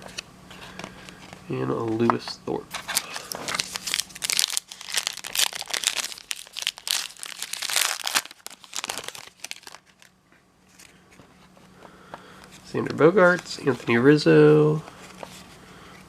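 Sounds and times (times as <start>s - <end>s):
wrapper crinkling and tearing: 2.8s - 10.2s.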